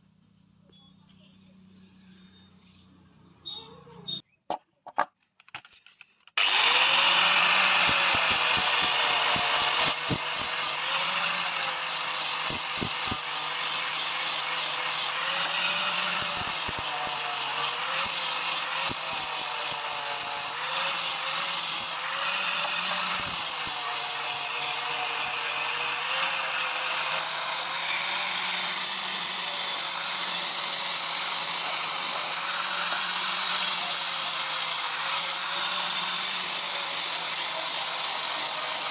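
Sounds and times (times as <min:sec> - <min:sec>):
electric power tool on metal: 0:06.4 - 0:38.9.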